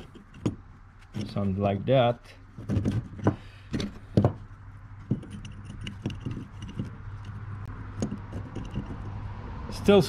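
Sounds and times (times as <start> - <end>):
metallic knocks of clamp parts: 0.0 - 1.4, 2.6 - 9.2.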